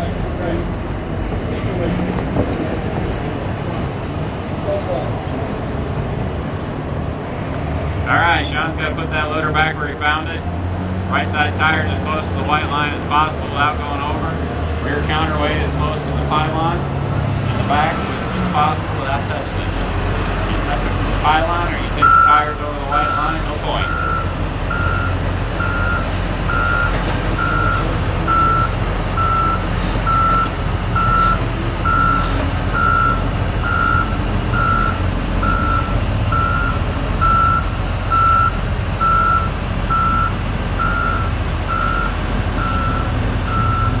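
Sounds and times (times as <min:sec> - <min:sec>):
diesel engine running: 0:00.0 - 0:44.0
backup alarm beeping: 0:21.9 - 0:44.0.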